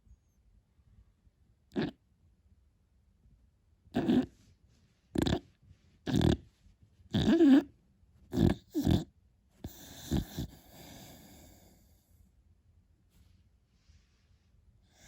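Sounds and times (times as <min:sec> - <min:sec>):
puppy snoring with grunts: 0:01.7 - 0:02.0, 0:03.9 - 0:04.4, 0:05.1 - 0:06.5, 0:07.1 - 0:07.7, 0:08.3 - 0:12.0.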